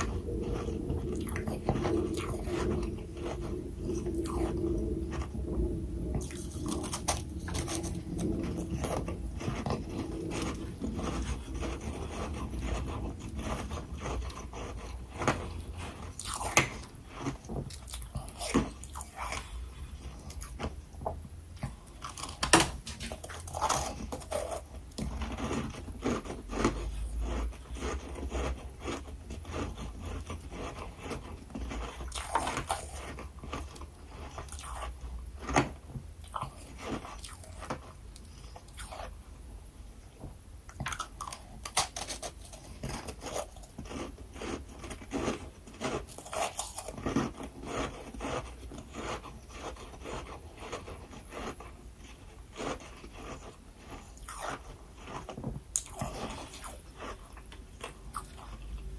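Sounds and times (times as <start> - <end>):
person crunching frost: 0.0 - 20.7, 21.7 - 35.7, 40.9 - 58.9.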